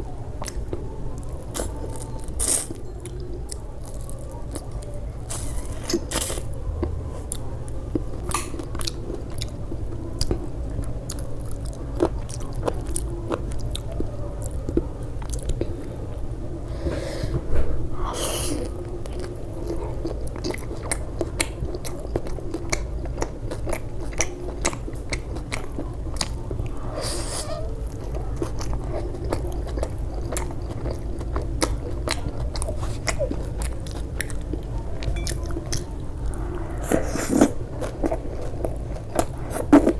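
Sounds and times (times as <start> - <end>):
steady low hum: 0.0 - 39.9
biting and chewing: 18.6 - 39.9.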